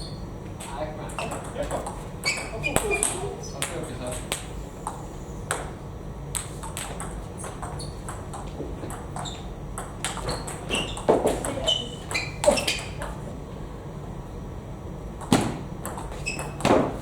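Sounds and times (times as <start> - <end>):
shoe squeaks: 0.0 - 0.3, 1.2 - 3.2, 7.4 - 8.3, 8.9 - 13.2, 16.0 - 16.8
table tennis ball clicking: 6.4 - 13.2.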